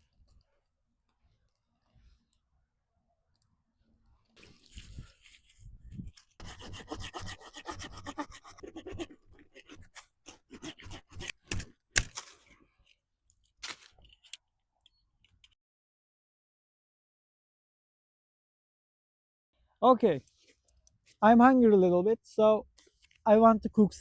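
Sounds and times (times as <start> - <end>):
rough scraping and rubbing: 4.4 - 11.7.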